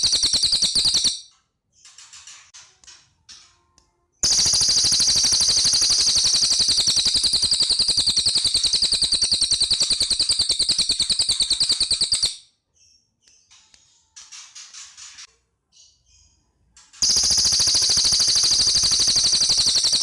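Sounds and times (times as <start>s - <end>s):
bird rattling trill: 0.0s - 1.3s, 4.2s - 12.4s, 17.0s - 20.0s.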